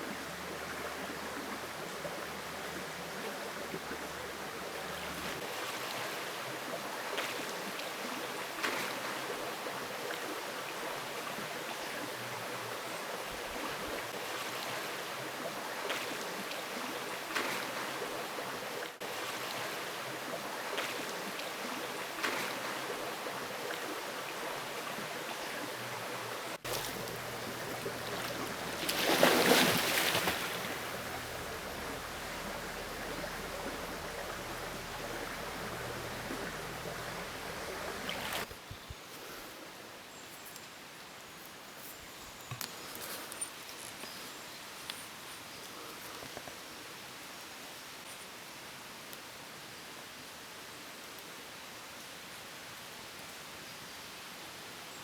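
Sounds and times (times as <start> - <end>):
stream water rushing: 0.0 - 38.5.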